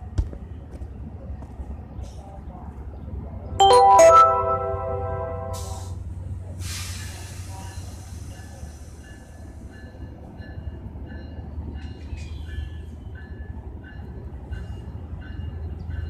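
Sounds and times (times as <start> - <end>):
faint short high tones: 3.6 - 6.0
train rumbling on track: 5.6 - 16.0.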